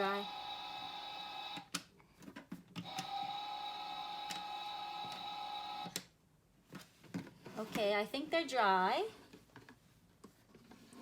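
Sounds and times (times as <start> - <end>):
toy dishwasher humming: 0.0 - 1.7, 2.8 - 6.0.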